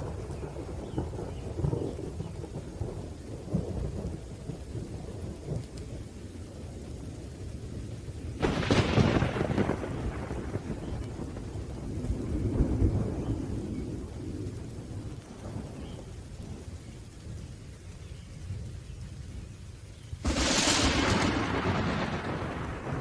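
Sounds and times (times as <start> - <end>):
low rolling thunder: 0.0 - 19.6, 20.2 - 23.0
steady rain: 0.0 - 23.0
sharp thunderclap: 8.4 - 15.8, 20.2 - 23.0.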